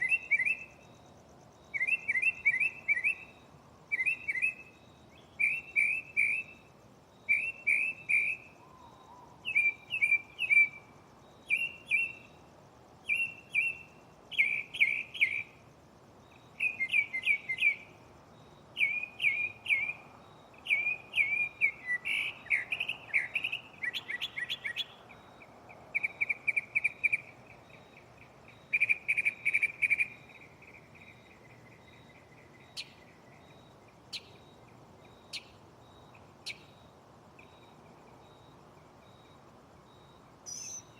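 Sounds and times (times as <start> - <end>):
mockingbird singing: 1.7 - 3.3, 3.9 - 6.6, 7.3 - 10.8, 11.4 - 12.3, 16.6 - 17.8, 18.8 - 20.0, 20.6 - 25.2, 25.8 - 36.8, 40.5 - 40.9.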